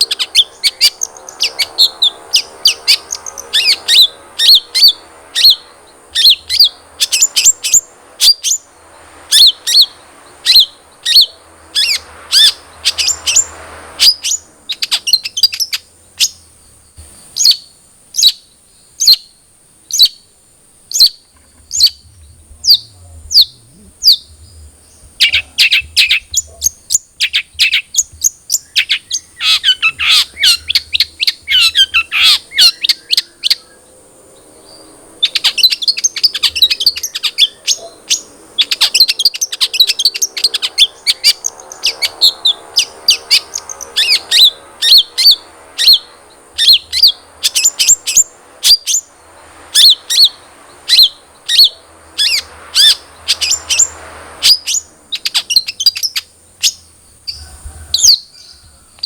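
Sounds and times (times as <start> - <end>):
shrike singing sharp chattering notes: 0.0 - 18.4, 20.9 - 33.8.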